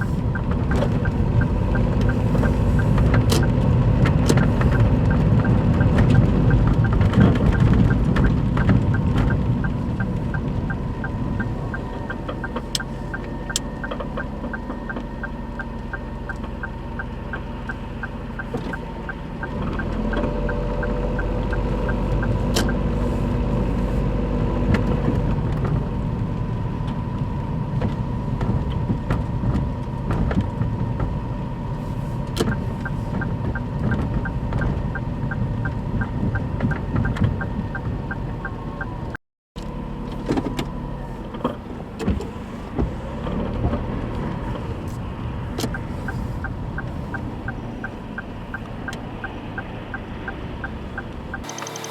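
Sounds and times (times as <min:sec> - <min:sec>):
light engine ticking: 0:00.0 - 0:23.3, 0:45.5 - 0:51.9
car engine running: 0:00.0 - 0:51.9.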